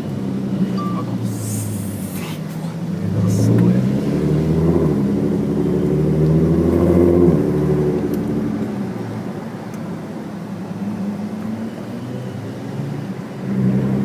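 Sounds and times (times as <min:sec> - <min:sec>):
vehicle engine running: 0:00.0 - 0:11.5.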